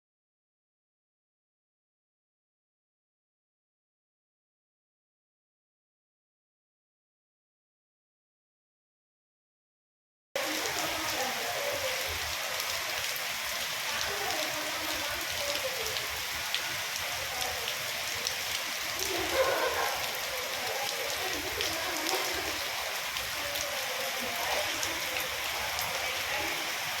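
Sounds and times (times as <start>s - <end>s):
heavy rain falling: 10.4s - 27.0s.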